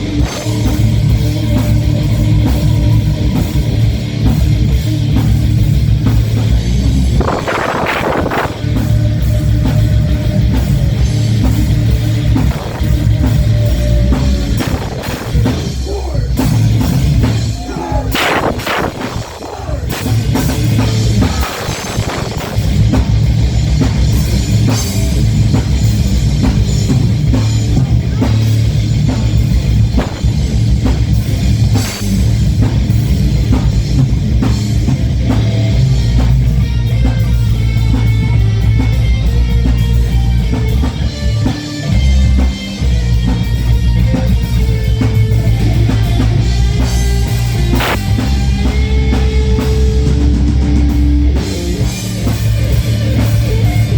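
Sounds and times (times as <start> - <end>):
drum kit: 0.0 - 53.9
electric guitar: 0.0 - 53.9
rock band playing live: 0.0 - 53.9.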